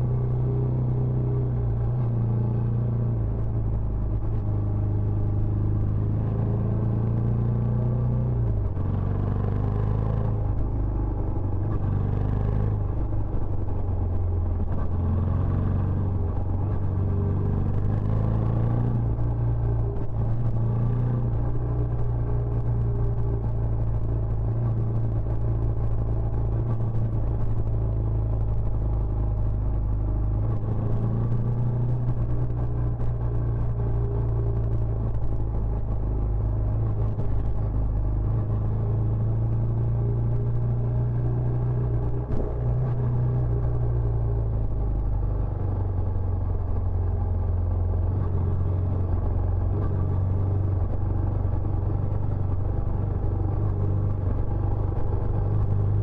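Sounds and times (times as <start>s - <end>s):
motorcycle engine rumbling: 18.6s - 56.0s.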